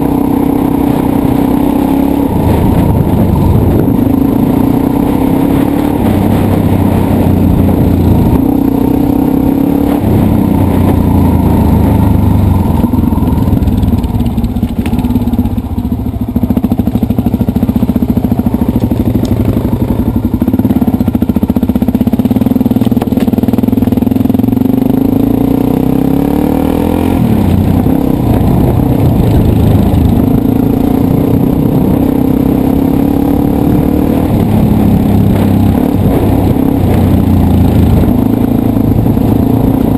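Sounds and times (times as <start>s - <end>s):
dirt bike engine revving: 0.0s - 15.4s, 23.4s - 39.9s.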